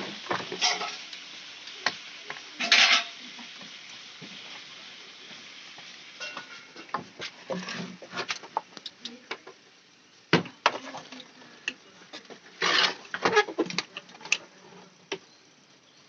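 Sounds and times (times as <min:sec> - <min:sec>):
scraping rustle: 0:06.5 - 0:08.5, 0:12.2 - 0:15.0.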